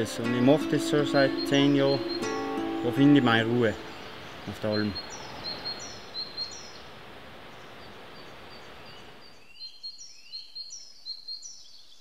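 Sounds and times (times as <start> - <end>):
small bird chirping: 1.0 - 6.8.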